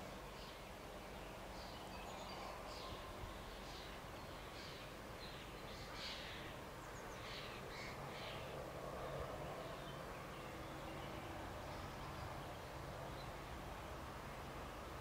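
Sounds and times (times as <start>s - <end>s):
faint steady rush: 0.0s - 15.0s
birds calling: 1.2s - 8.5s.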